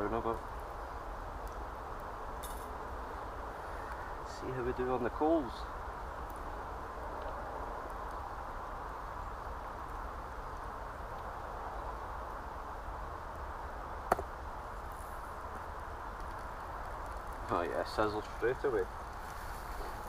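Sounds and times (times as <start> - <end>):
sharp crack: 14.0 - 14.4.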